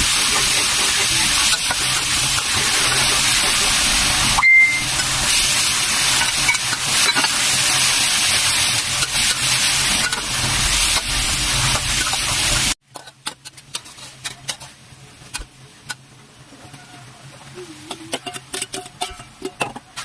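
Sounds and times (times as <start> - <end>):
food sizzling in a hot pan: 0.0 - 12.8.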